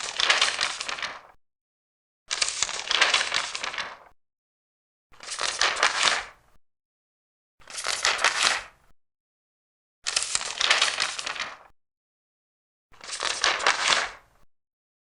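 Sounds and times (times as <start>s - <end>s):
paper pages turning: 0.0s - 1.4s, 2.3s - 4.1s, 5.2s - 6.3s, 7.7s - 8.7s, 10.1s - 11.7s, 13.0s - 14.2s.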